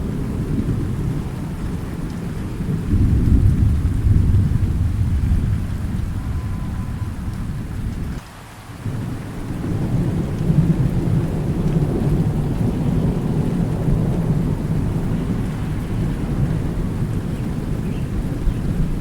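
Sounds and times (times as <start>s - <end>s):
thunder rumbling: 0.0s - 8.2s, 8.8s - 19.0s
steady rain: 0.0s - 19.0s.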